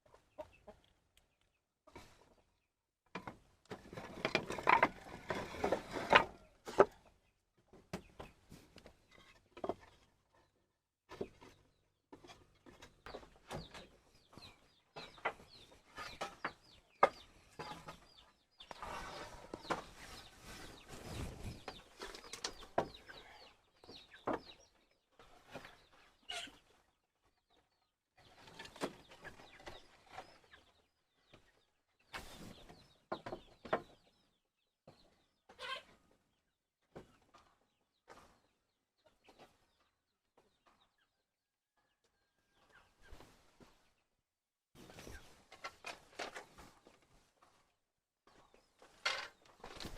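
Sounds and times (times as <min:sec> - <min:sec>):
chickens clucking softly: 0:00.0 - 0:02.7, 0:03.3 - 0:36.2.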